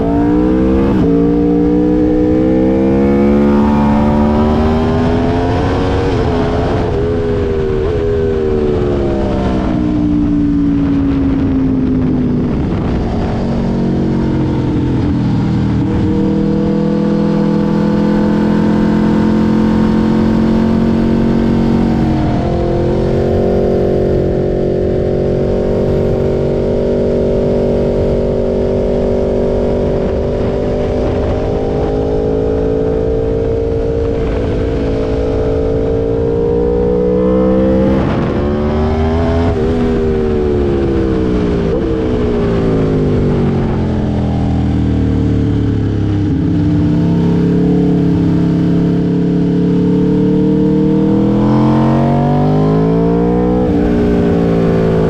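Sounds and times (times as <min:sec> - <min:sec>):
motorcycle engine at speed: 0:00.0 - 0:55.0.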